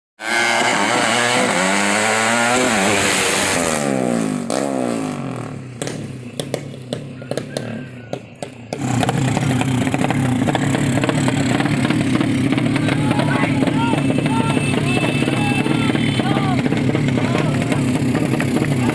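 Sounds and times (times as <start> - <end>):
motorcycle engines at full throttle: 0.2 - 18.9.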